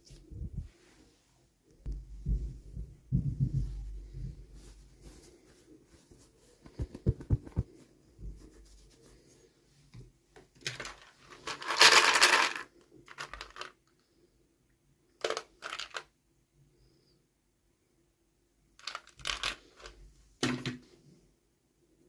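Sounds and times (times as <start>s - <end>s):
plastic pieces scraping: 10.6s - 13.8s, 15.2s - 16.1s, 18.8s - 20.0s
plastic toy pieces clicking: 10.7s - 13.8s, 18.8s - 19.9s.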